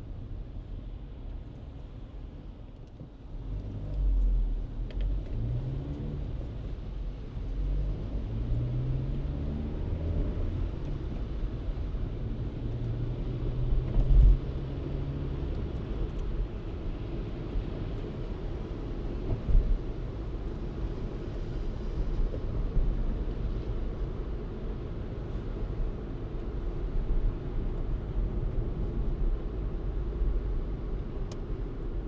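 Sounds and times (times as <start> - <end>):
road rumble: 0.0 - 32.0
car engine accelerating: 7.4 - 17.3.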